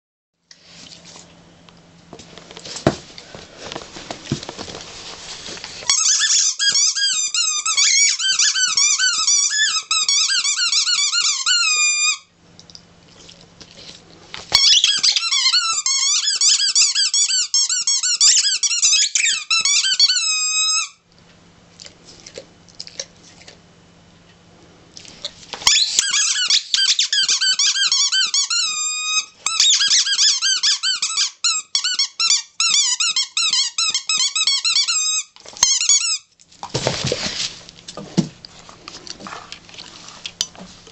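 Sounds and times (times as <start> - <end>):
squeaky toy ball squeaking: 5.9 - 12.3, 14.5 - 21.0, 25.6 - 36.3.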